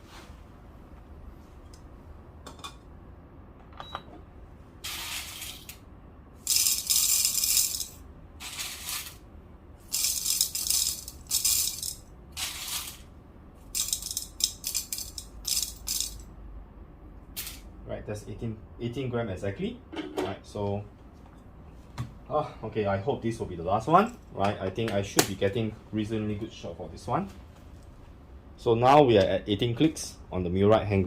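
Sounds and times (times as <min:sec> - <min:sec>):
coffee beans rattling into cup: 0:06.4 - 0:09.2, 0:09.8 - 0:13.1, 0:13.7 - 0:16.2.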